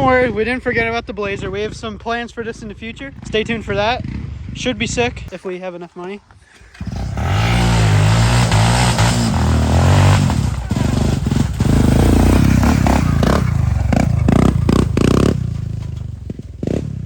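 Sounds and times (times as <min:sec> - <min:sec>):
quad engine revving: 0:06.7 - 0:17.0
clattering and scraping: 0:09.2 - 0:17.0.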